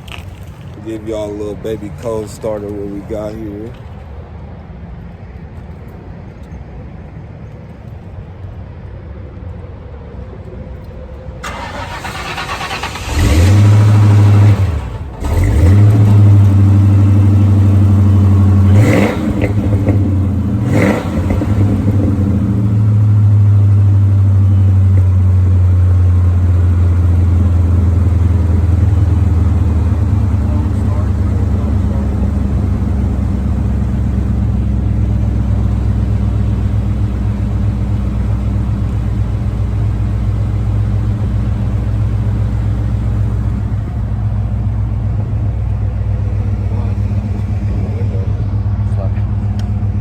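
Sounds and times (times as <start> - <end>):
car engine idling: 0.0 - 6.1, 10.0 - 50.0
engine starter cranking: 11.4 - 16.7
car engine revving: 11.4 - 50.0.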